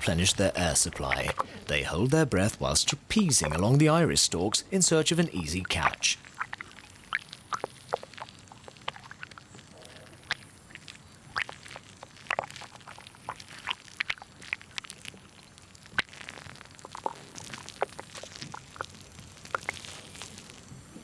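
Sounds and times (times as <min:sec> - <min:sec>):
faint hiss: 0:00.0 - 0:21.0
underwater clicks and bubbly pops: 0:00.9 - 0:01.6, 0:05.7 - 0:20.8.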